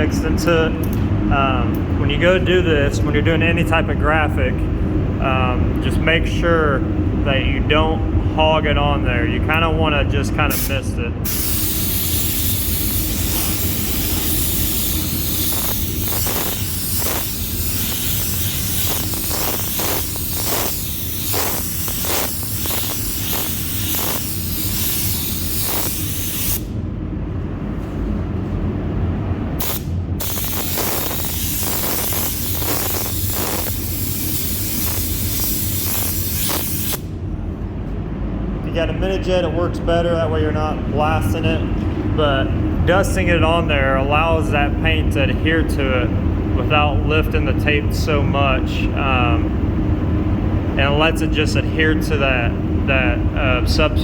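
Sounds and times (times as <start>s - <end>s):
steady low hum: 0.0s - 54.0s
spray gun hissing: 10.6s - 26.7s, 29.6s - 37.1s.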